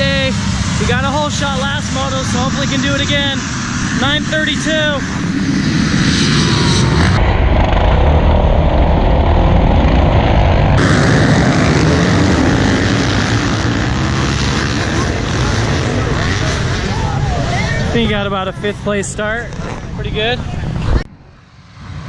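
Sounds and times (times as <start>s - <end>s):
dirt bike engines accelerating: 0.0s - 22.0s.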